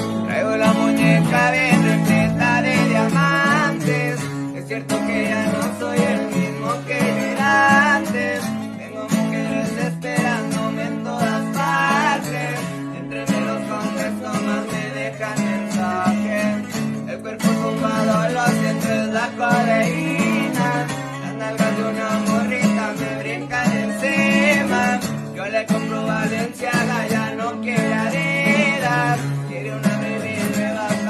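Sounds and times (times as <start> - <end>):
plucked guitar accompaniment: 0.0 - 31.0.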